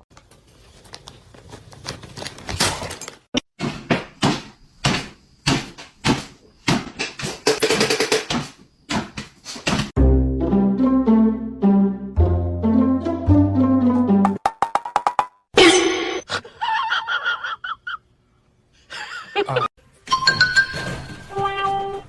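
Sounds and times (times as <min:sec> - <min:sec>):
plucked string music: 0:10.0 - 0:14.4.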